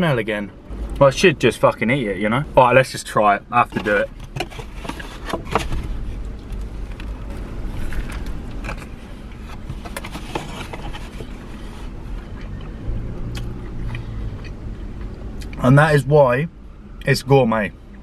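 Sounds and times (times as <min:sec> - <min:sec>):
low hum: 0:00.0 - 0:18.0
steady low rumble: 0:00.0 - 0:18.0
man chewing with crunches: 0:05.9 - 0:15.6.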